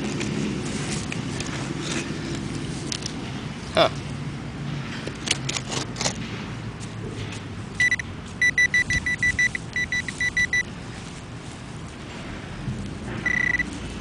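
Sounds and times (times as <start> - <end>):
digging in dirt: 0.0 - 3.2, 5.1 - 12.0
metal detector beeping: 7.8 - 10.7, 13.2 - 13.7.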